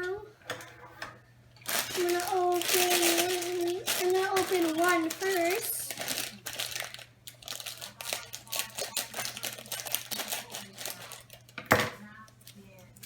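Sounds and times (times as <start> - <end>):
plastic bag crinkling: 1.6 - 11.6.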